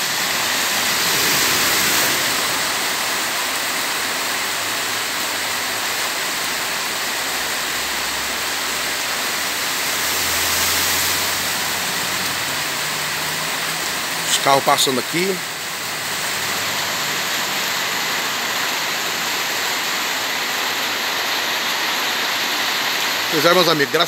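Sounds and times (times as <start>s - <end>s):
car engine hum: 0.0s - 3.8s, 7.8s - 14.2s
car tyres swishing through water: 0.0s - 24.0s
heavy rain on pavement: 0.0s - 24.0s.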